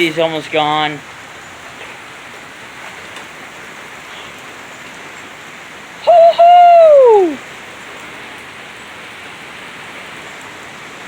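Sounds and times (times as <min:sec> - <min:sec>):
heavy rain falling: 0:00.0 - 0:11.0
loud whooping call: 0:06.0 - 0:07.4.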